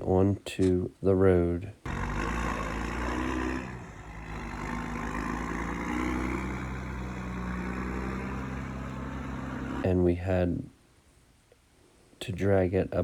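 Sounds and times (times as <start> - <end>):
tractor diesel engine under load: 1.9 - 9.9.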